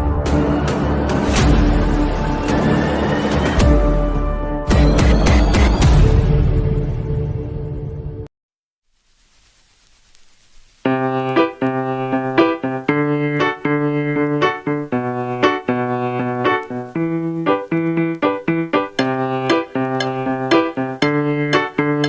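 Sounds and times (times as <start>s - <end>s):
faint hiss: 8.8s - 20.9s
piano music: 10.8s - 22.0s.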